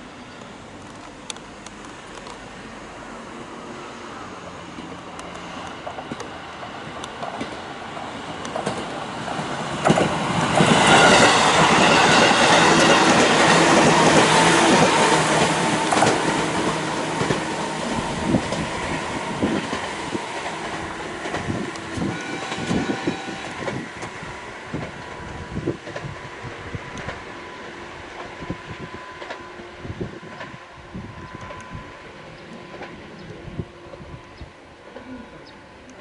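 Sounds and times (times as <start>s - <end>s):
electric train passing: 0.0s - 36.0s
wheels clicking over rail joints: 4.8s - 17.6s, 19.4s - 26.1s.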